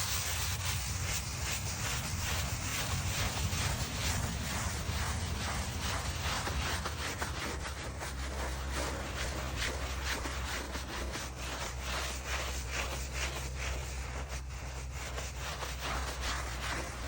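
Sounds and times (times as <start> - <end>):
brush scrubbing stone: 0.0 - 17.0.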